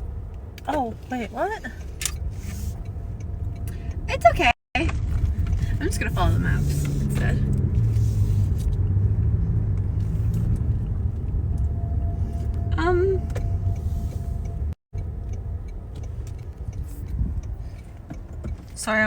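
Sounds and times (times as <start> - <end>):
car cabin road rumble: 0.0 - 19.0.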